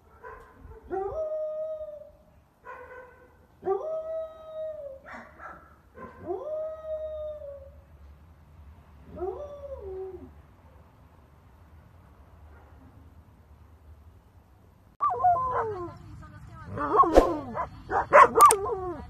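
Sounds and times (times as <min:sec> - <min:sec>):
dog yelping: 0:16.8 - 0:18.9.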